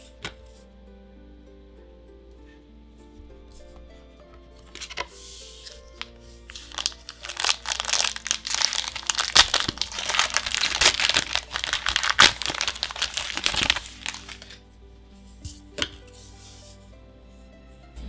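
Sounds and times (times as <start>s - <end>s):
foil wrapper crinkling: 5.6s - 14.6s.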